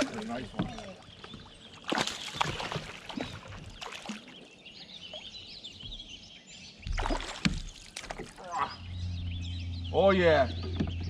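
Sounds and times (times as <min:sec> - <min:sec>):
water splashing: 0:00.0 - 0:05.4, 0:06.8 - 0:08.9
bird singing faintly: 0:00.0 - 0:11.0.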